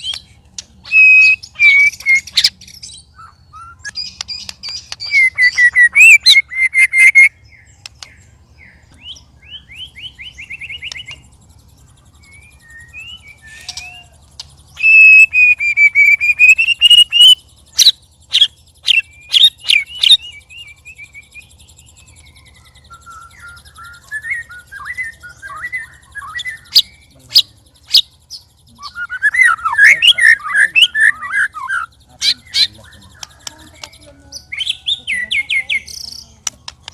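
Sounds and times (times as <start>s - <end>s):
bird sharp clicks: 0.0s - 2.8s, 3.8s - 6.1s, 7.8s - 8.2s, 10.6s - 11.2s, 13.5s - 15.0s, 32.2s - 34.7s, 35.9s - 36.9s
bird chattering: 0.0s - 36.9s
bird whistled song: 0.0s - 36.9s.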